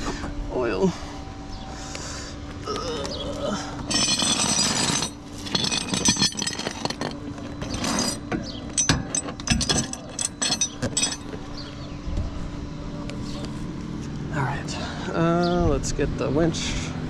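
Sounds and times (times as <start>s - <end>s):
metal clanking: 3.8s - 11.4s
metal scraping: 3.8s - 11.4s.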